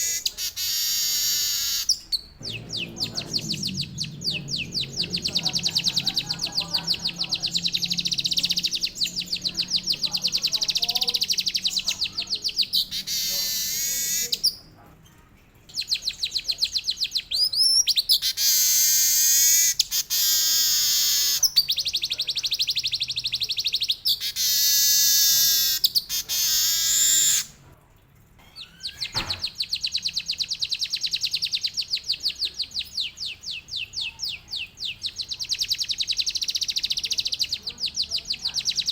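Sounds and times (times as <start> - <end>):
bird singing rattling trills: 0.0 - 14.7.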